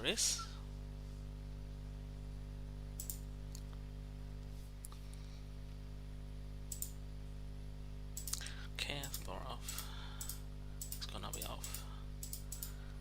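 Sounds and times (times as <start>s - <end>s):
low electrical hum: 0.0s - 13.0s
computer mouse clicks: 3.0s - 3.6s, 6.7s - 7.0s, 8.2s - 8.4s, 9.0s - 12.8s.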